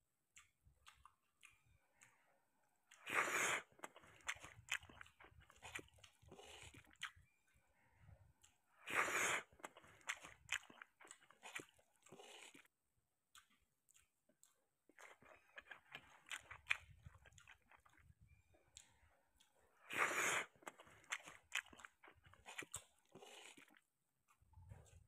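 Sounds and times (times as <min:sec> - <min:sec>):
lip smacks: 0:00.3 - 0:02.2, 0:02.9 - 0:07.2, 0:13.3 - 0:18.0
small mouth clicks: 0:00.3 - 0:02.2, 0:02.9 - 0:07.3, 0:13.3 - 0:25.0
wet chewing: 0:00.3 - 0:25.0
wet bursts of food into mouth: 0:02.9 - 0:07.2, 0:08.4 - 0:12.7, 0:19.8 - 0:23.8.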